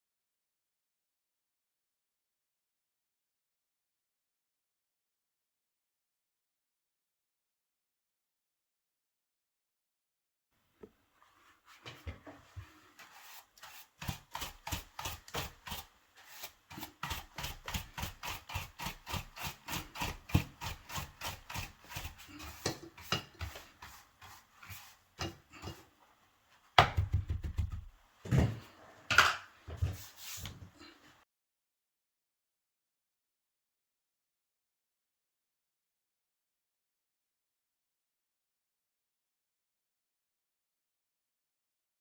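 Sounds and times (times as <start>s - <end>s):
knocks: 26.8s - 27.9s.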